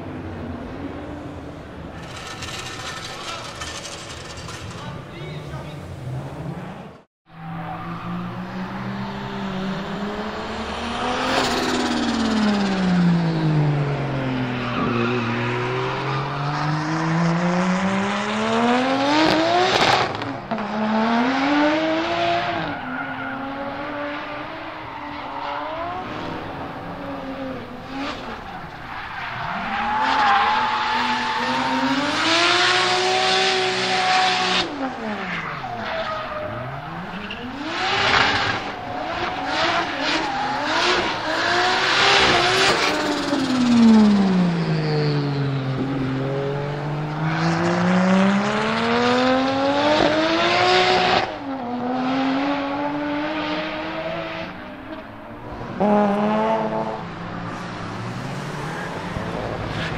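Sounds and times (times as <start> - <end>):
car engine revving: 1.3 - 6.9, 7.9 - 59.9
tyres squealing: 1.9 - 5.8.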